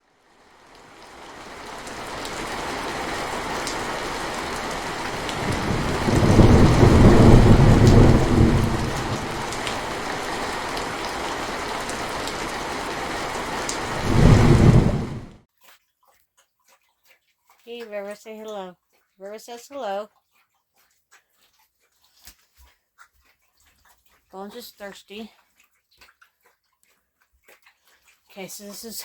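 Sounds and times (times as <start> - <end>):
steady rain: 0.0 - 15.4
thunder rolling: 1.6 - 15.4.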